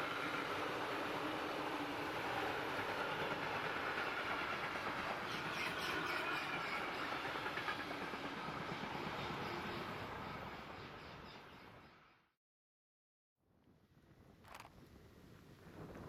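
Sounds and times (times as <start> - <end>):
train wheels rolling over rails: 0.0 - 10.3.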